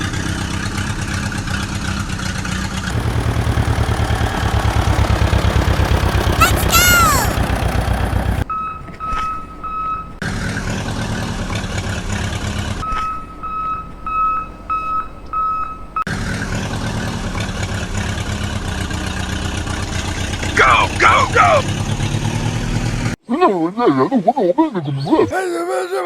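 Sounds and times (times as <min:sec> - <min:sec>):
vehicle engine running: 0:00.0 - 0:06.5, 0:07.4 - 0:08.5, 0:10.1 - 0:14.7, 0:16.1 - 0:23.2
reversing alarm beeping: 0:08.5 - 0:10.2, 0:12.8 - 0:16.1.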